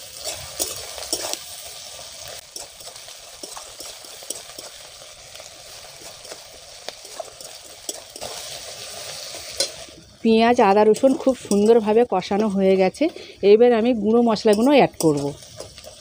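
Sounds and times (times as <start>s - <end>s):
onions sizzling in oil: 0.0s - 16.0s
spatula scraping and tapping pan: 0.2s - 1.4s, 2.5s - 4.8s, 6.0s - 8.5s, 10.9s - 13.2s, 14.1s - 16.0s.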